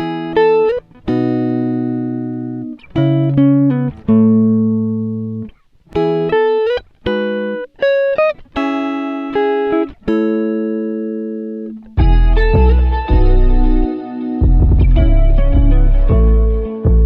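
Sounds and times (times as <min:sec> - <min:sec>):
music with sustained chord tones: 0:12.0 - 0:17.0.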